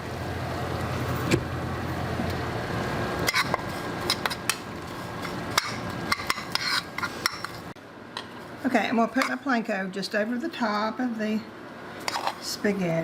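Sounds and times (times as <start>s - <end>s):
spoon scraping a pan: 3.2s - 7.7s, 12.0s - 12.5s.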